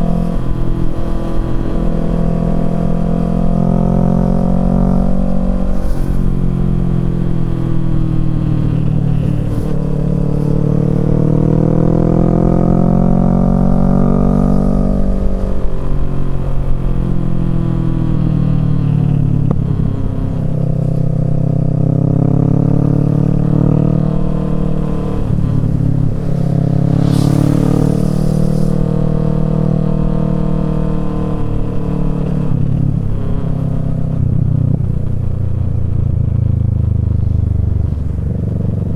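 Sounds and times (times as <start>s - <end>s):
motorcycle engine revving: 0.0s - 38.9s
short hiss: 25.0s - 29.2s.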